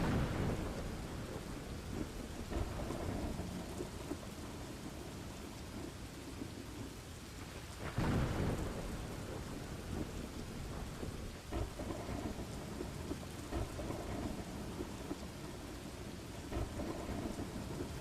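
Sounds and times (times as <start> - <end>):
steady rain: 0.0 - 18.0
thunder rumbling: 0.0 - 18.0.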